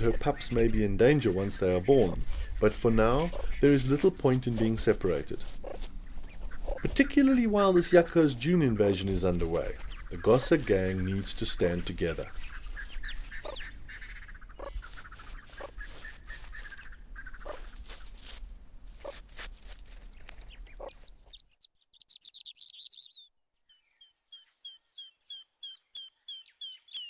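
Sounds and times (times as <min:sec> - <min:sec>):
faint calls: 0:00.0 - 0:17.8
small bird singing: 0:00.0 - 0:18.1, 0:19.9 - 0:27.0.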